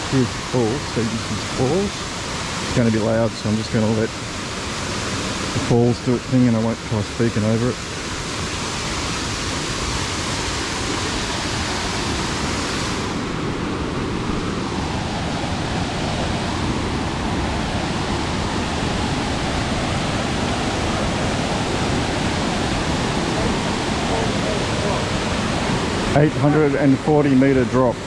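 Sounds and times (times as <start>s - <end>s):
waterfall rushing: 0.0s - 28.0s
person speaking: 26.1s - 28.0s.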